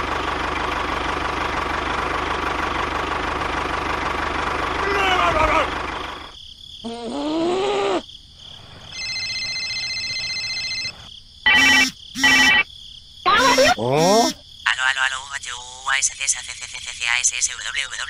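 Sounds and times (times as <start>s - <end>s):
short pitched blips: 11.5s - 12.6s
buzzing electronic tone: 11.5s - 12.7s.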